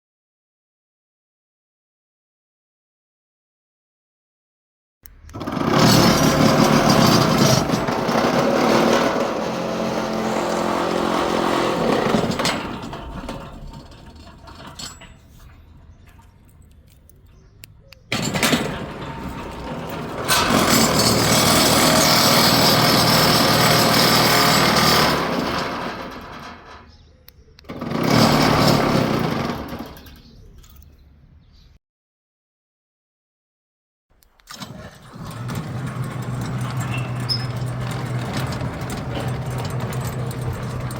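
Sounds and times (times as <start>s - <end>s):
gate motor rattling: 5.1s - 30.8s, 34.5s - 40.9s.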